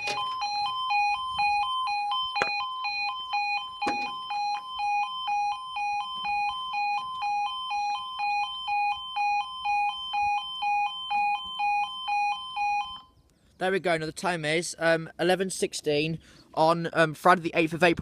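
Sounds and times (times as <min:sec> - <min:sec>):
two-tone warning alarm: 0:00.0 - 0:13.2.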